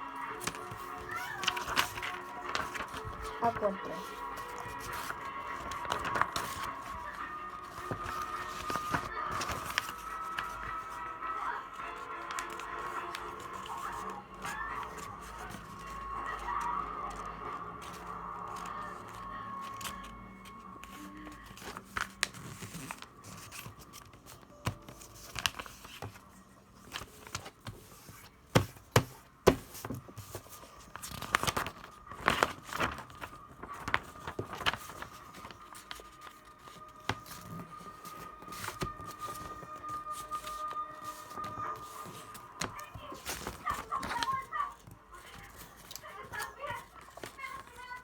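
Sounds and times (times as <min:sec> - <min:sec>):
paper crinkling and creasing: 0:00.0 - 0:48.0
paper snapping: 0:00.4 - 0:10.9, 0:12.2 - 0:16.4, 0:20.8 - 0:47.8.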